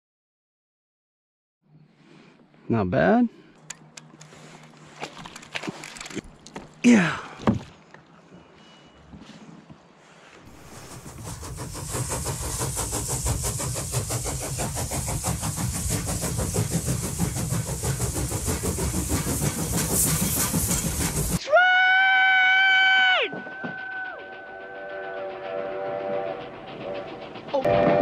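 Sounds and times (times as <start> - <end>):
train clattering on rails: 10.5 - 21.4, 23.2 - 28.0
locomotive whistle blast: 21.5 - 28.0.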